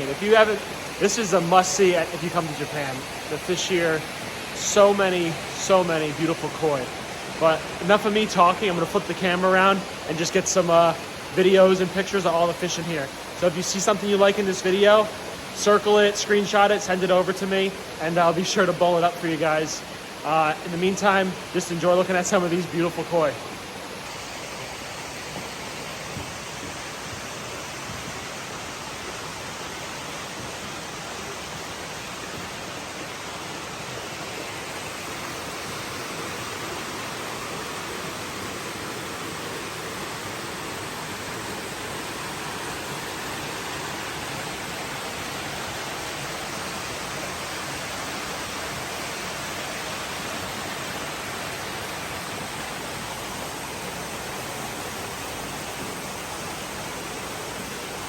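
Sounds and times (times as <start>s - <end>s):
water rushing into pond: 0.0s - 58.0s.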